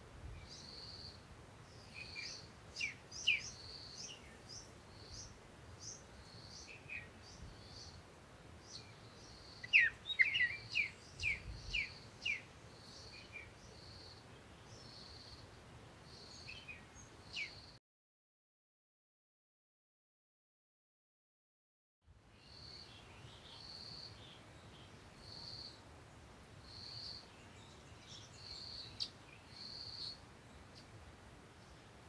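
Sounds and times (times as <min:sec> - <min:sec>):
small birds chirping: 0:00.4 - 0:08.0, 0:08.6 - 0:17.8, 0:22.4 - 0:25.8, 0:26.7 - 0:32.0.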